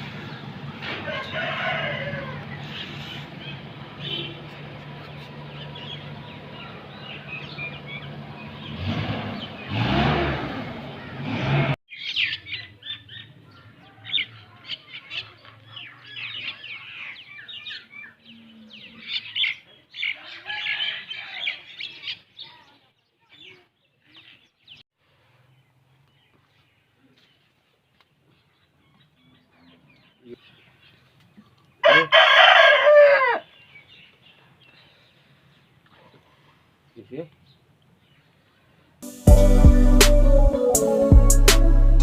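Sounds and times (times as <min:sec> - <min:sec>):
small birds chirping: 0:02.4 - 0:10.0, 0:11.9 - 0:31.8, 0:33.4 - 0:39.0.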